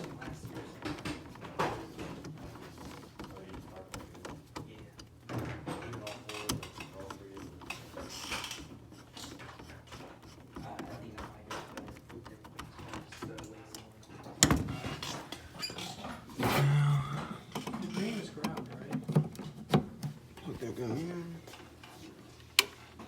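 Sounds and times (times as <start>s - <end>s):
indistinct low voices: 16.2s - 19.0s.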